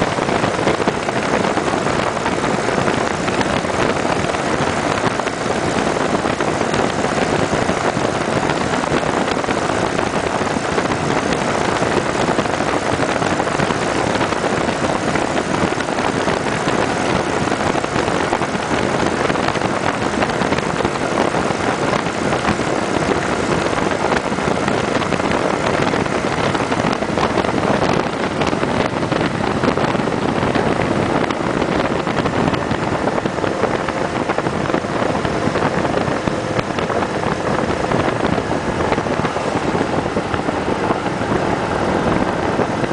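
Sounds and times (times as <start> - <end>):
motorcycle engine and road noise: 0.0 - 42.9
wind buffeting microphone: 0.0 - 42.9.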